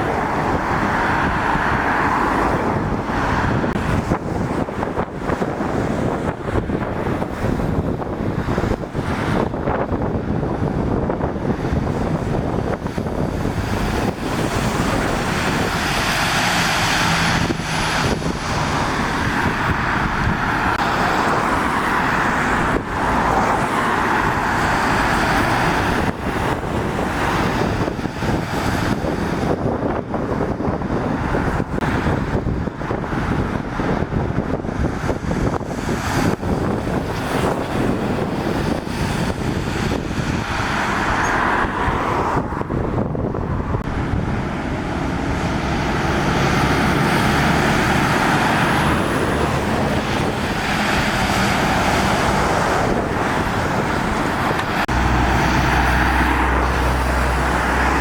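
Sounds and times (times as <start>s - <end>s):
wind buffeting microphone: 0.0s - 58.0s
tyres hissing on wet road: 13.2s - 29.4s, 35.0s - 42.5s, 44.3s - 58.0s.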